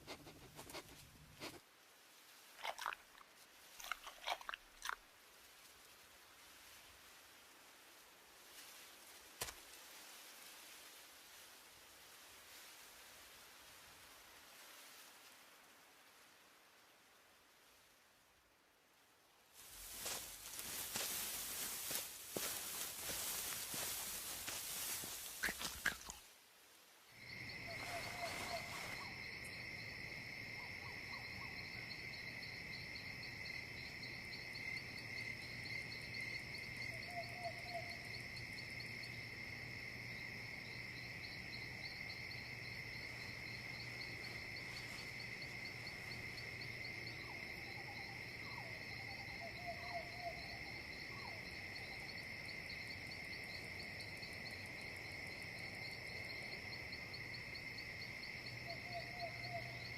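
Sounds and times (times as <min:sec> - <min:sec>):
insect chorus trilling: 0:19.6 - 0:26.2, 0:27.1 - 0:59.9.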